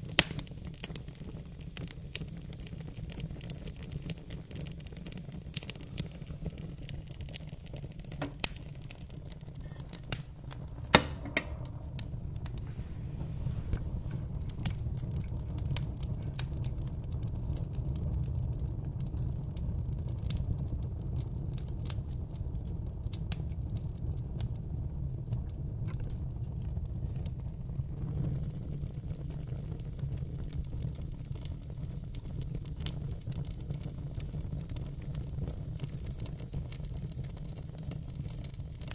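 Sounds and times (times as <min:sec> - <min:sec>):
wood fire crackling: 0:00.0 - 0:38.9
low rumble: 0:08.3 - 0:20.2, 0:24.4 - 0:29.4.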